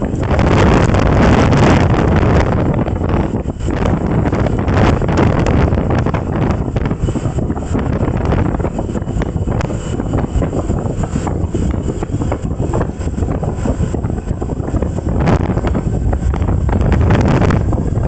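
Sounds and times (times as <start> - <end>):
wind buffeting microphone: 0.0 - 18.0
wind thumps on microphone: 0.0 - 18.0.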